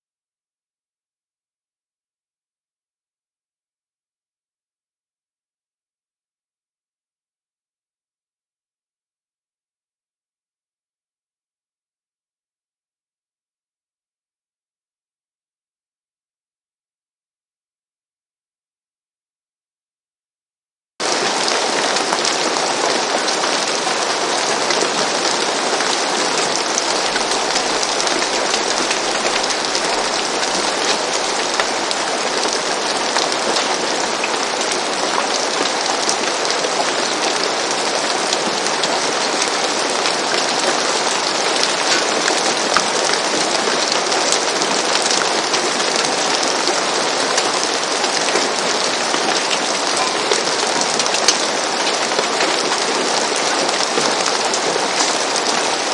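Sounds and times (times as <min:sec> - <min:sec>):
rain on a roof: 0:21.0 - 0:55.9.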